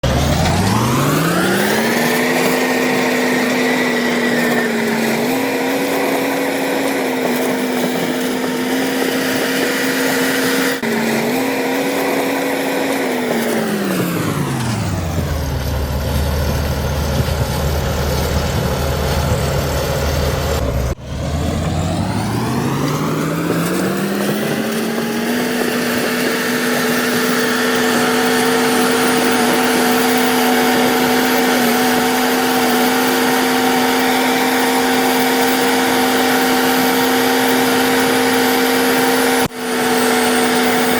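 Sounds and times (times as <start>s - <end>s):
bulldozer diesel engine revving: 0.0s - 40.9s.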